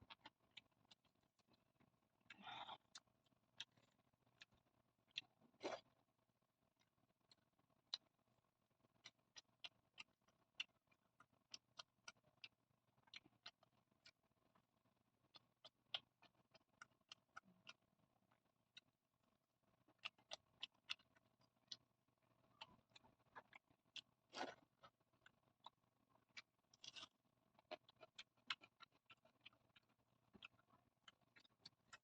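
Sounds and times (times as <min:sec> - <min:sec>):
wet chewing mouth clicks: 0:02.3 - 0:05.9, 0:22.9 - 0:25.0, 0:25.6 - 0:32.0.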